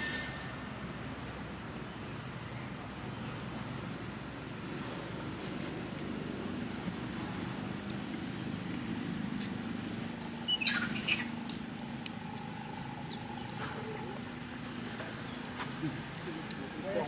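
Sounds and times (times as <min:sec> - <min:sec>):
low background hum: 0:00.0 - 0:17.0
monkey squeaking: 0:10.2 - 0:11.5.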